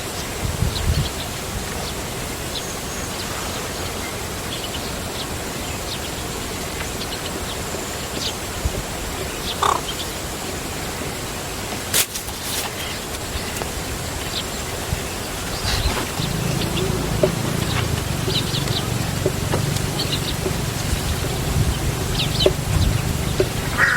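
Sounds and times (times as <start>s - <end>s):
steady hiss: 0.0s - 23.9s
high chirps of small animals: 15.7s - 23.9s
low rumble: 16.1s - 23.8s.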